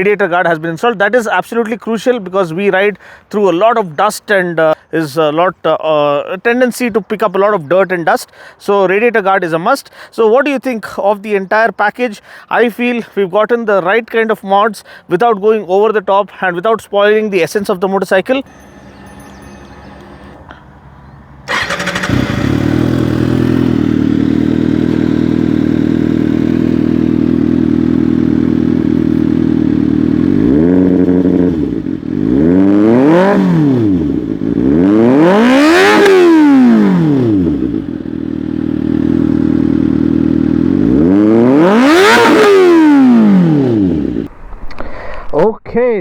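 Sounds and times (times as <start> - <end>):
motorcycle engine idling: 21.5 - 32.3, 33.8 - 34.7, 36.8 - 41.1
motorcycle engine revving: 21.5 - 44.3.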